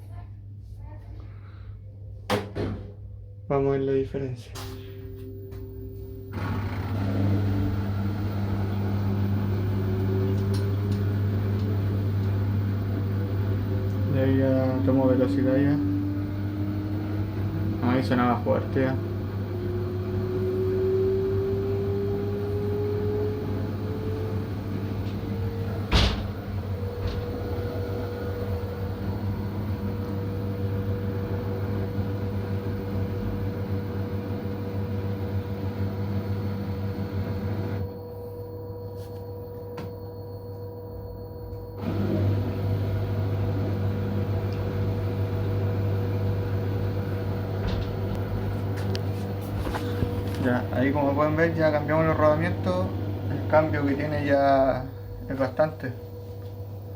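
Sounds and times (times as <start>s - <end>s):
motor whine: 4.7s - 56.9s
washing machine drum spinning: 5.0s - 38.1s, 41.6s - 56.9s.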